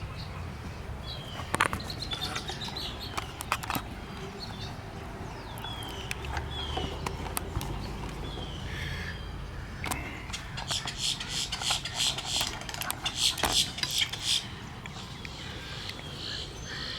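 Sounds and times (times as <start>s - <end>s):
birds chirping: 0.0s - 16.9s
sharp clicks: 5.5s - 8.3s, 9.8s - 16.0s.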